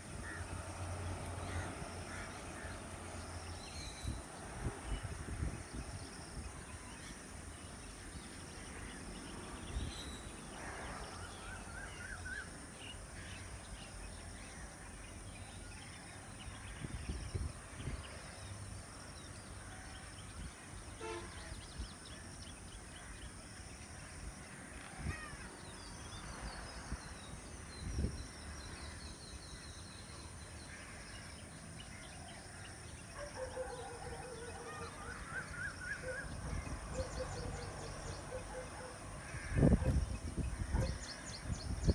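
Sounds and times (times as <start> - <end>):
bird calls: 31.9 - 41.9.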